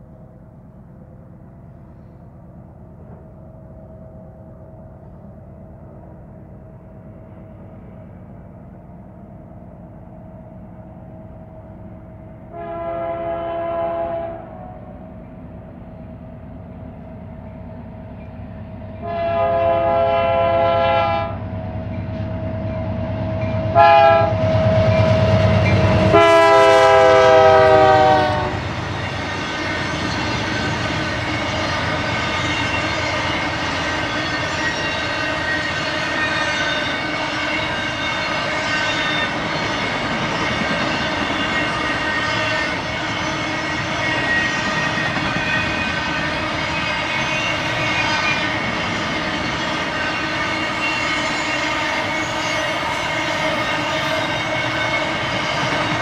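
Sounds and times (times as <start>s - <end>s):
diesel locomotive engine rumble: 0.0s - 56.0s
train air horn blasts: 12.5s - 14.9s, 19.0s - 21.4s, 23.7s - 24.4s, 25.4s - 28.7s
train cars rolling by: 14.9s - 56.0s.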